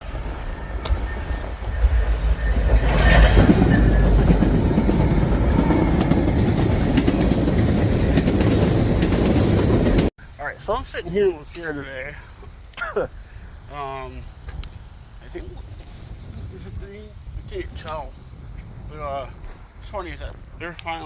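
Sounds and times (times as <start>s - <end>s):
freight train rumbling past: 0.0s - 10.1s
train wheels clicking over rail joints: 0.8s - 10.1s.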